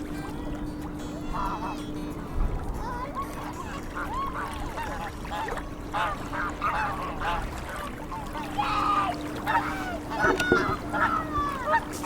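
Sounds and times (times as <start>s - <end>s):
waterfowl calling: 3.7s - 12.0s.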